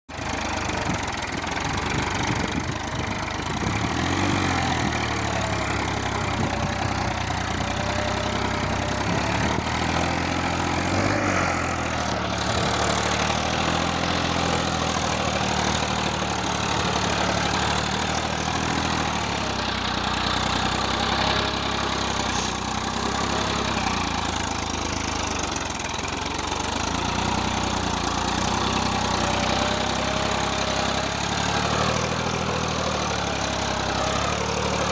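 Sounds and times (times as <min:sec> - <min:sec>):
tractor engine running: 0:00.1 - 0:34.9.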